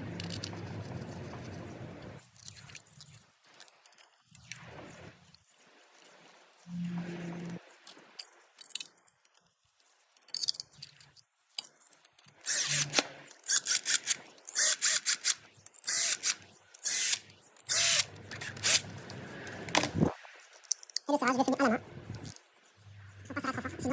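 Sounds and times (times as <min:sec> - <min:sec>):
rapid metallic ratchet clicking: 0:12.5 - 0:18.8.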